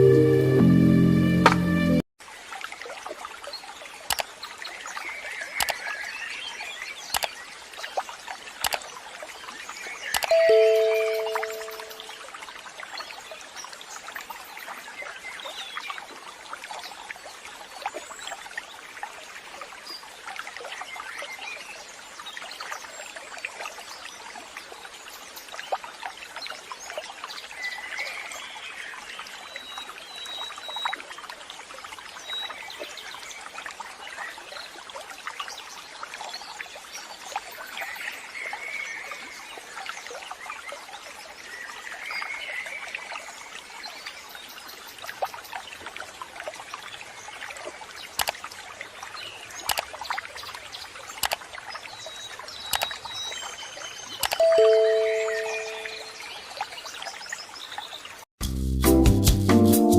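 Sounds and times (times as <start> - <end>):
high bird chirps: 10.1 - 12.2, 54.2 - 56.2.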